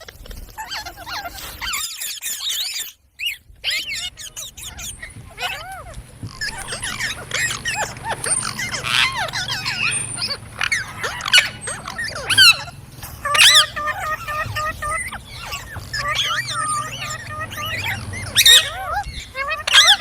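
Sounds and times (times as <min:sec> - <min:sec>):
parrots chirping and squawking: 0:00.0 - 0:20.0.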